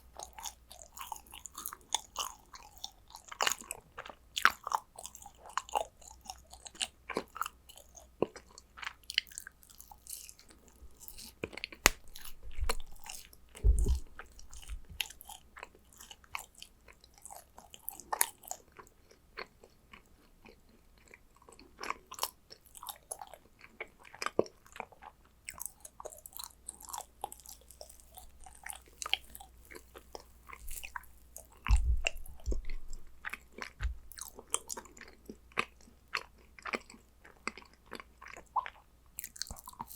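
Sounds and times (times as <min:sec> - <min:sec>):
chewing crunchy cookies: 0:00.0 - 0:39.9
low thumps: 0:13.6 - 0:15.0, 0:31.6 - 0:33.2, 0:33.8 - 0:34.3.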